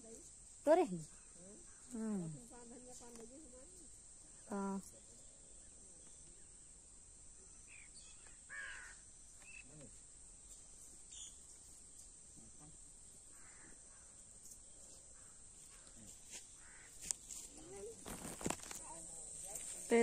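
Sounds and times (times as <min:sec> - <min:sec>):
faint short bird calls: 0:07.7 - 0:09.9, 0:13.3 - 0:14.2, 0:14.8 - 0:17.1.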